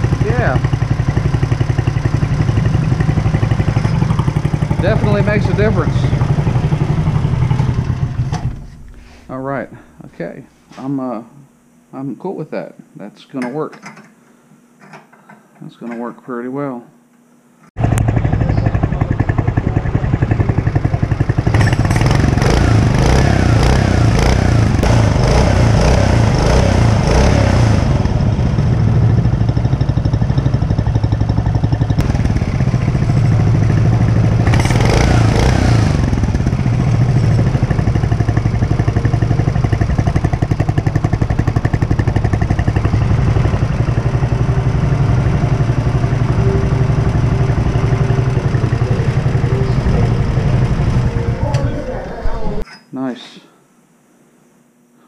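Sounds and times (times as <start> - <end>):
small engine idling and revving: 0.0 - 8.6, 17.8 - 51.8.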